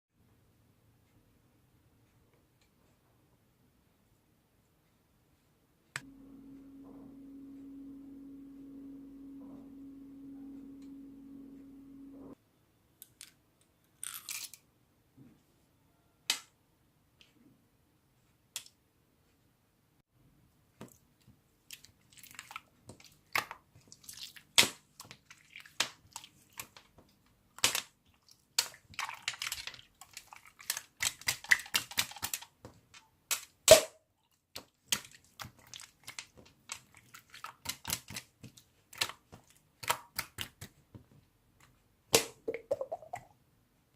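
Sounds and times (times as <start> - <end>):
low steady hum: 5.9 - 12.8.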